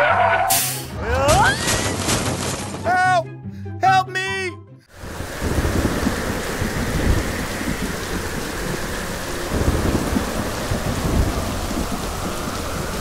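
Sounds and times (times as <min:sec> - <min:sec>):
heavy rain: 0:04.9 - 0:13.0
thunder rumbling: 0:04.9 - 0:13.0.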